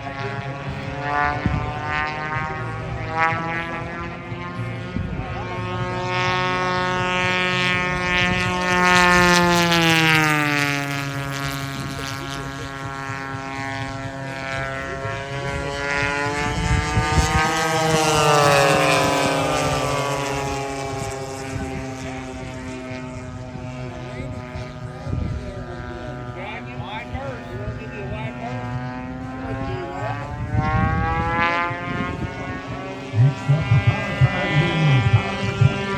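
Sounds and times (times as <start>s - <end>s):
model plane engine passing: 0.0s - 35.9s.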